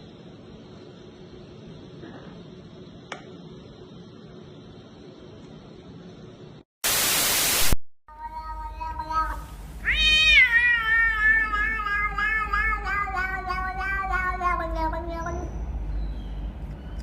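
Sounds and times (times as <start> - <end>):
cat meowing: 8.1 - 15.5.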